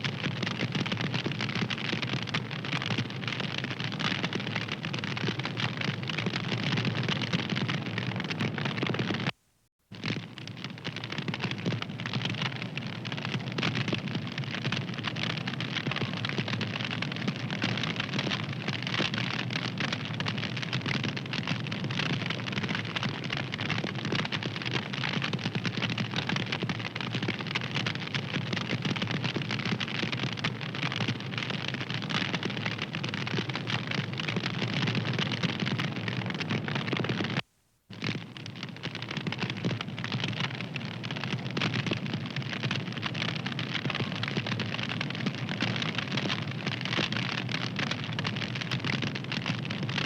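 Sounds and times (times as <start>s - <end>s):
wood fire crackling: 9.9s - 50.0s.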